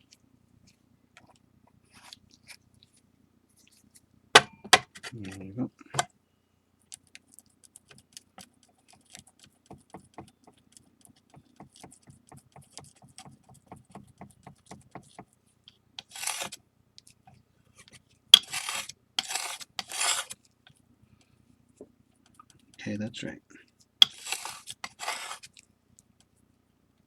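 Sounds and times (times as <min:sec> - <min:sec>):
mixing tool tapping and clicking: 0:07.9 - 0:15.3
tool scraping a tray: 0:16.0 - 0:16.6, 0:18.4 - 0:20.4, 0:24.0 - 0:25.5.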